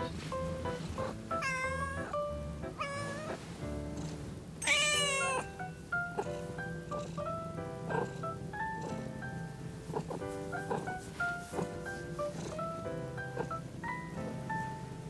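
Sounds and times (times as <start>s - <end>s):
background music with plucked notes: 0.0s - 15.0s
cat meowing: 1.3s - 2.2s, 2.8s - 3.4s, 4.6s - 5.6s.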